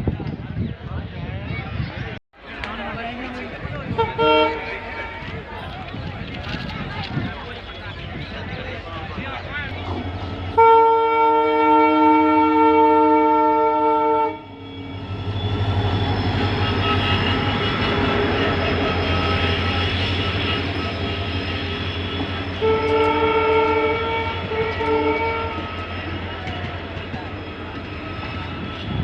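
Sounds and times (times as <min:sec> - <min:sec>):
train rumbling and rattling on track: 0:00.0 - 0:29.0
train horn blaring: 0:03.9 - 0:05.7, 0:09.7 - 0:29.0.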